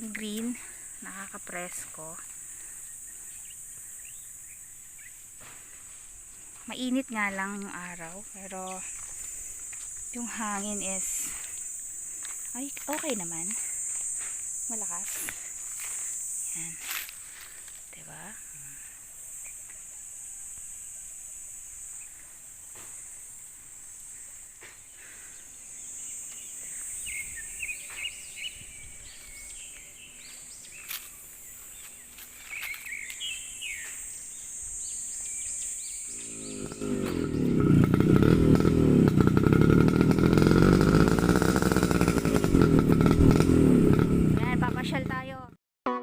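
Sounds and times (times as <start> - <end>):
insect drone: 0.0 - 45.4
bird chirps: 2.8 - 5.2, 25.7 - 37.6.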